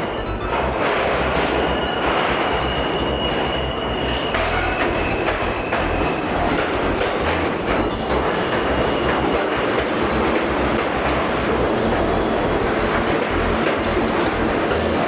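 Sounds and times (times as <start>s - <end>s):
rail joints clickety-clack: 0.0s - 15.0s
train wheels rumbling on rails: 0.0s - 15.0s
thin wheel squeal: 1.6s - 6.9s, 7.8s - 14.0s.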